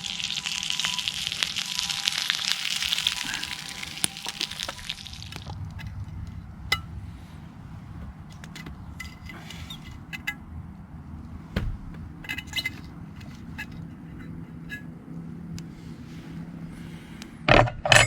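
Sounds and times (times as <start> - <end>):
metal utensils on griddle: 0.0 - 6.9, 8.3 - 10.4, 12.2 - 14.9, 17.5 - 18.0
low rumble: 1.8 - 9.1.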